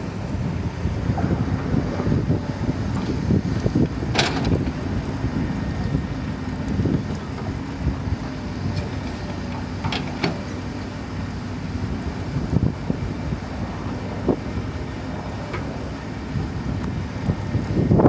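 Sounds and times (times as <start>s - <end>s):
excavator diesel engine: 0.0s - 18.0s
metal clanks: 3.8s - 4.8s, 8.8s - 10.6s.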